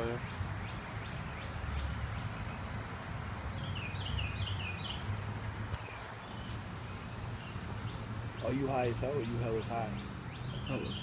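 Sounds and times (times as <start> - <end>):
small bird chirping: 3.5 - 11.0.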